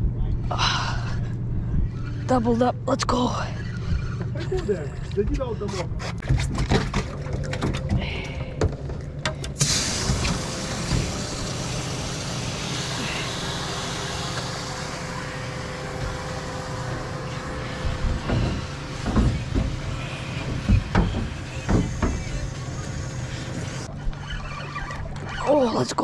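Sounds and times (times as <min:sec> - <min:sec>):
boat motor running: 0:00.6 - 0:25.3
constant hiss: 0:09.6 - 0:23.9
sharp knocks: 0:10.0 - 0:23.9.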